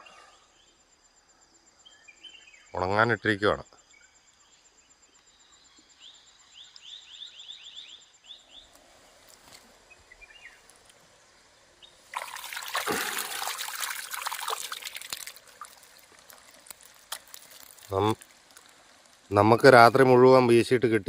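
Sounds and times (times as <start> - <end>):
bird chirping: 0.0 - 13.8
faint insect tone: 0.0 - 21.0
water splashing and trickling: 10.6 - 20.3.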